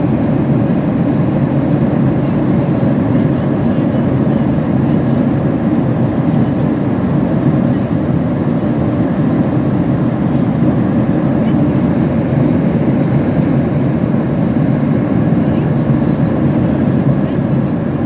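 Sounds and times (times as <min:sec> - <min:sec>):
airplane cabin engine rumble: 0:00.0 - 0:18.0.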